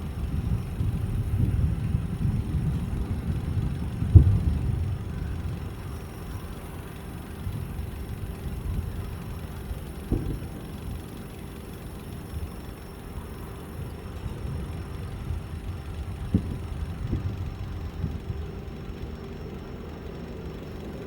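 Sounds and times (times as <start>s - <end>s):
distant fireworks booming: 4.1s - 4.9s, 10.0s - 10.6s.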